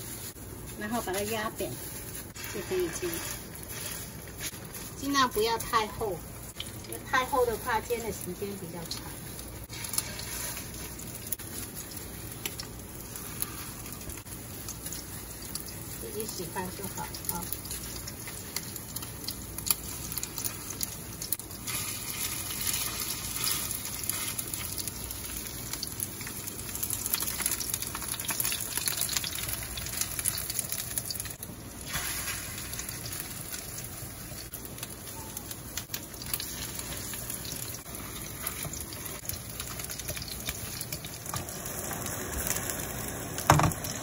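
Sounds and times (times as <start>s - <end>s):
oil spitting and crackling: 0.0s - 34.9s
patties sizzling in hot oil: 0.0s - 44.0s.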